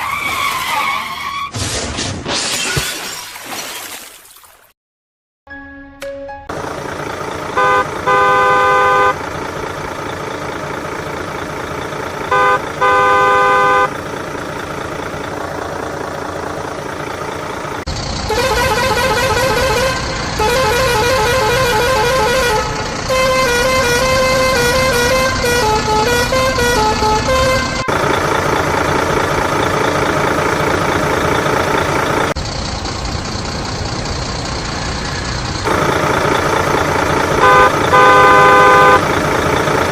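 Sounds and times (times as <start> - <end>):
vehicle engine running: 6.5 - 39.9
car horn honking: 7.5 - 9.3, 12.2 - 14.0, 18.3 - 28.0, 37.4 - 39.2
wavering tune-like horn: 18.3 - 27.9, 37.4 - 39.0.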